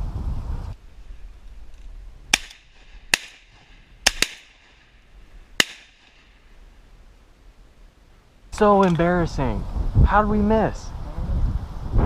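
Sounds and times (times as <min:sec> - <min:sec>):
shotgun shots: 0:02.3 - 0:05.0, 0:05.6 - 0:06.3.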